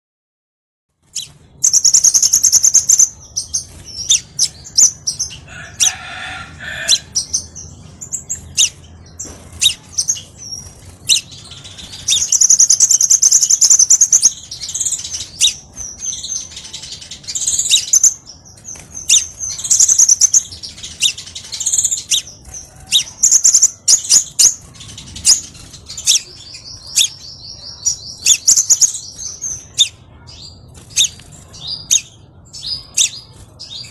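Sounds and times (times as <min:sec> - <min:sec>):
bird twittering and trilling: 0:01.0 - 0:33.9.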